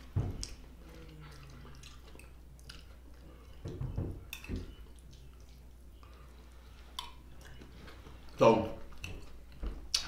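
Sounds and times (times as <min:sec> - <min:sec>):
man chewing food: 0:00.0 - 0:10.0
wet mouth clicks and smacks: 0:06.9 - 0:07.6.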